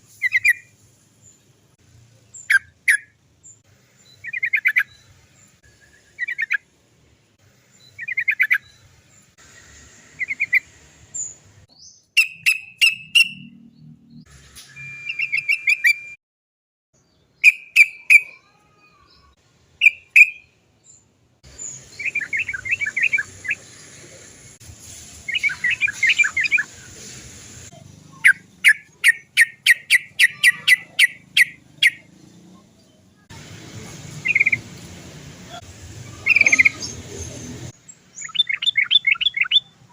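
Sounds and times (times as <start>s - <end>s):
bulbul chattering song: 0.1s - 0.8s, 2.2s - 6.7s, 7.7s - 9.4s, 10.1s - 14.3s, 15.1s - 16.0s, 17.3s - 39.9s
bird trills: 11.8s - 13.7s, 17.4s - 20.5s, 28.2s - 32.1s, 36.1s - 37.0s, 38.2s - 39.7s
evenly spaced bird notes: 36.1s - 37.5s.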